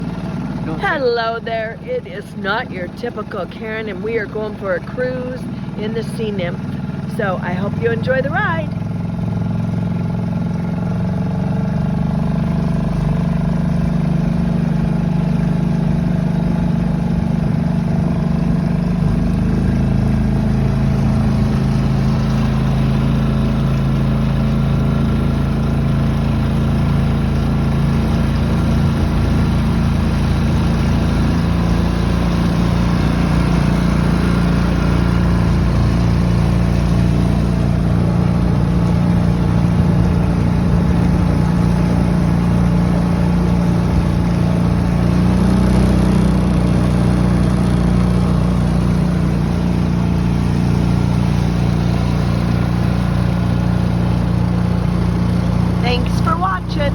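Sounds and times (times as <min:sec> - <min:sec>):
boat outboard motor running: 0:00.0 - 0:56.9.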